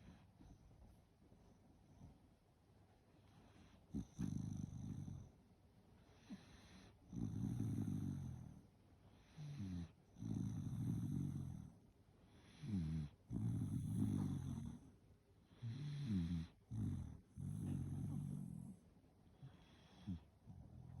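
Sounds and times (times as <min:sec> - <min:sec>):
dog snoring: 0:03.4 - 0:05.3, 0:06.1 - 0:18.8, 0:19.4 - 0:21.0.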